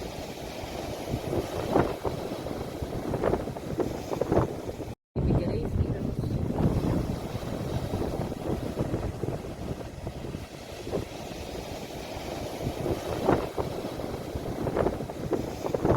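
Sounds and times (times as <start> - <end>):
ocean waves washing in: 0.0 - 15.9
wind buffeting microphone: 0.0 - 15.9.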